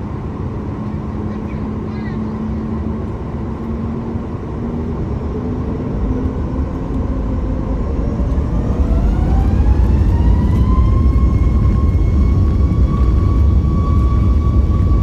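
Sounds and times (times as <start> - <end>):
jet engines spooling up: 3.2 - 15.0.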